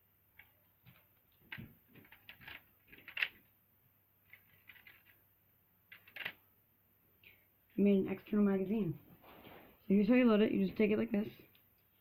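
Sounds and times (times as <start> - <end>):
plastic toy bricks clicking: 2.0 - 3.4, 4.3 - 5.2, 5.9 - 6.4.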